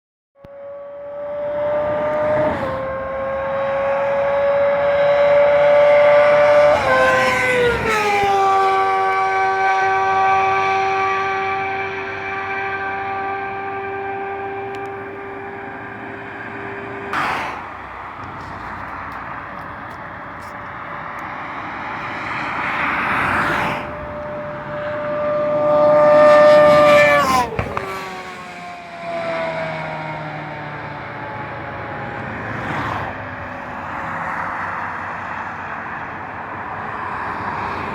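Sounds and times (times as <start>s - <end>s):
motorcycle engine high note: 0.4s - 17.1s
sport bike passing at high revs: 0.4s - 37.9s.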